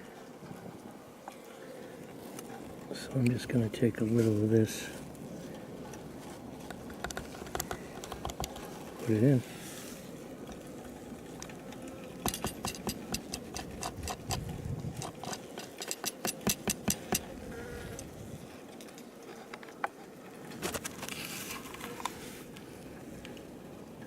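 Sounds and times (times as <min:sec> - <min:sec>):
honey bees buzzing: 0:00.9 - 0:20.6
sharp irregular ticks and taps: 0:06.7 - 0:08.6, 0:11.4 - 0:14.4, 0:15.0 - 0:17.3.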